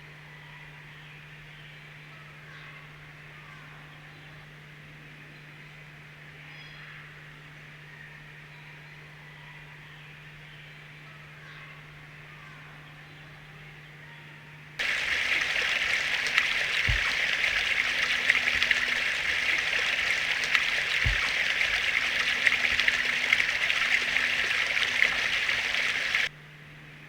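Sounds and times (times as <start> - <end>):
stream water running: 14.8 - 26.3.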